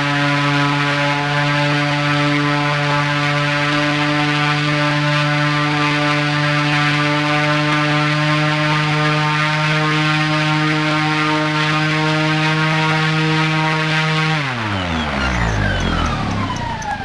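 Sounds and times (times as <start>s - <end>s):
electric motor spinning propeller: 13.2s - 17.0s.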